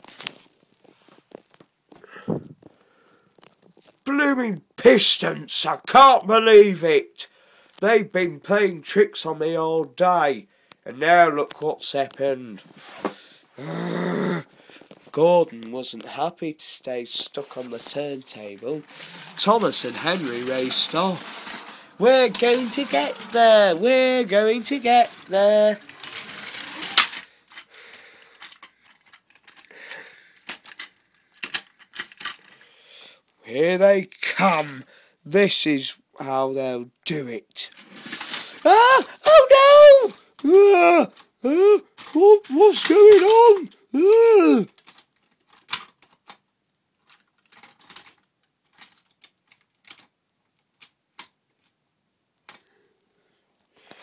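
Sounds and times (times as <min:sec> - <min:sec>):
plastic toy trains clicking: 0:15.6 - 0:32.8, 0:33.8 - 0:34.9, 0:37.5 - 0:51.8, 0:52.4 - 0:52.7.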